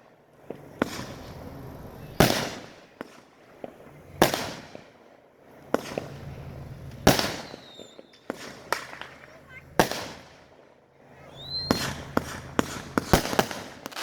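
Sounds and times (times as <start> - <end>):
fireworks banging: 0.0 - 14.0
fireworks popping and crackling: 0.0 - 14.0.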